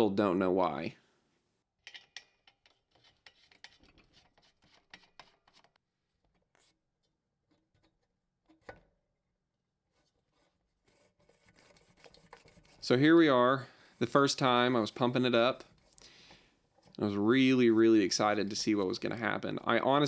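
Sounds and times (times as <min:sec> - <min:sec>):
faint rubbing: 0:09.9 - 0:20.0.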